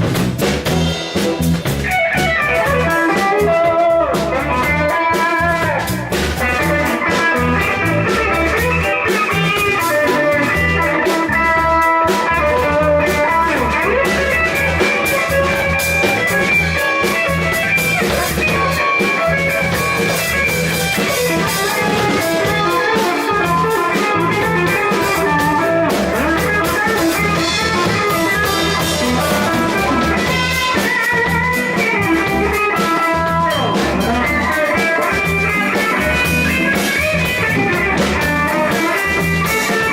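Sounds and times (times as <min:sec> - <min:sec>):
blues band instrumental: 0:00.0 - 0:39.9
electric guitar: 0:00.0 - 0:39.9.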